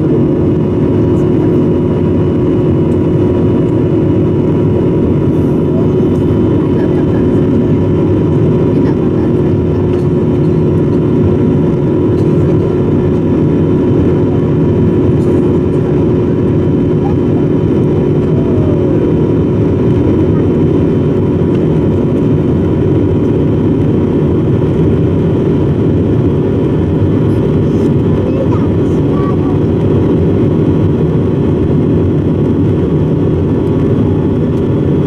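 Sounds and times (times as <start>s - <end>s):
airliner engine drone in cabin: 0.0s - 35.0s.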